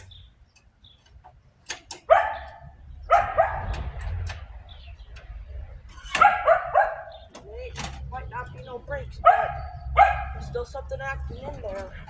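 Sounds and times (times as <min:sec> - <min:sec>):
dog barking: 0:02.0 - 0:03.8, 0:06.2 - 0:07.3, 0:09.2 - 0:10.6.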